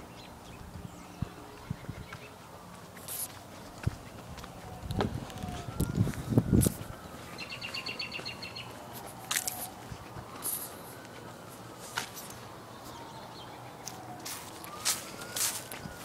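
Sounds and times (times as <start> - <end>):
outdoor background noise: 0.0 - 16.0
footsteps thumping: 2.7 - 7.1
bird chirping: 7.0 - 8.9, 12.2 - 14.1.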